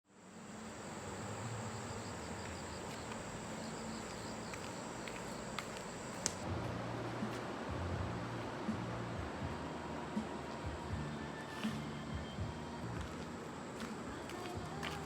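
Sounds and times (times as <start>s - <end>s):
insect chirps: 0.1s - 6.4s
insects buzzing: 0.1s - 6.5s.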